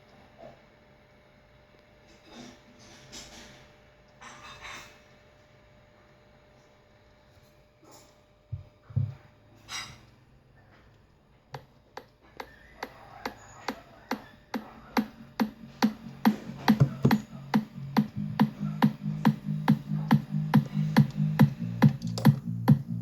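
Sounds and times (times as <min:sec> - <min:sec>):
electronic dance music: 0:15.4 - 0:23.0
knocks: 0:16.6 - 0:17.3.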